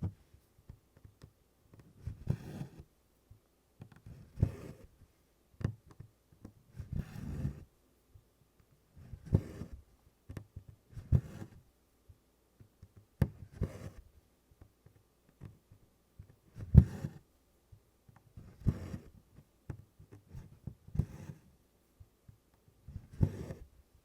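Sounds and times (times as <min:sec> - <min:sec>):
thread rasping through cloth: 0:00.0 - 0:02.9, 0:03.8 - 0:05.0, 0:05.6 - 0:07.7, 0:08.6 - 0:11.6, 0:12.6 - 0:14.0, 0:14.8 - 0:17.2, 0:18.1 - 0:21.5, 0:22.3 - 0:23.7.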